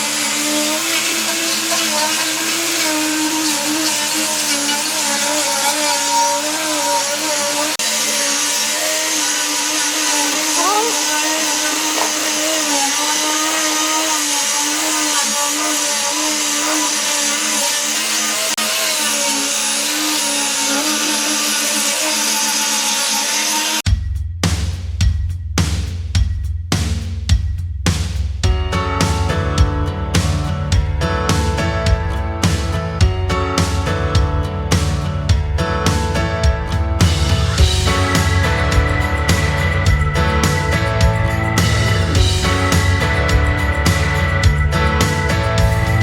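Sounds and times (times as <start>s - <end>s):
electric power tool running: 0.0s - 23.8s, 37.0s - 46.0s.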